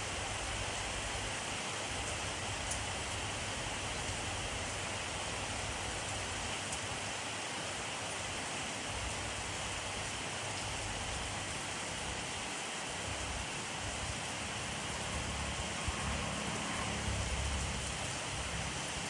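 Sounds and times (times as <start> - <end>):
steady rain hissing: 0.0 - 19.0
faint raindrop ticks: 2.0 - 2.9.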